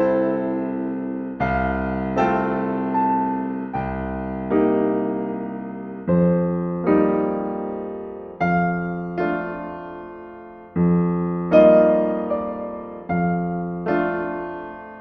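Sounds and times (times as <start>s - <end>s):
slow solo piano chords: 0.0s - 15.0s.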